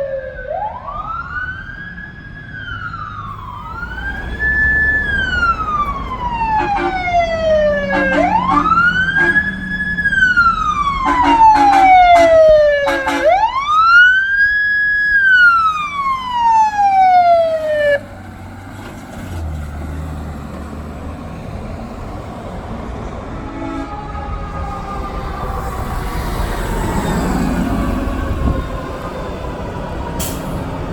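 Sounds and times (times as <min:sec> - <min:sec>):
emergency siren wailing: 0:00.0 - 0:30.9
traffic noise: 0:00.0 - 0:30.9
vehicle engine: 0:01.3 - 0:30.9
short horn blasts: 0:06.4 - 0:09.6, 0:11.0 - 0:13.5.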